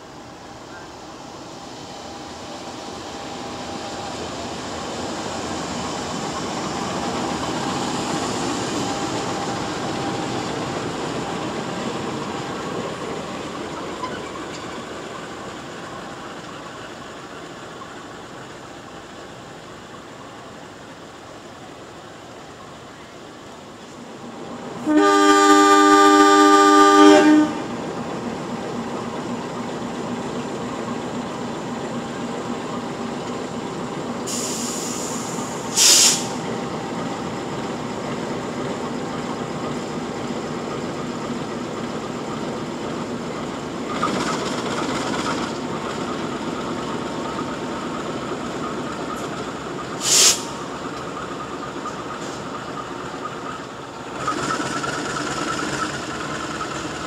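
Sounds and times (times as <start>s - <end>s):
train rumbling on rails: 0.0s - 57.0s
locomotive horn blast: 24.8s - 27.8s.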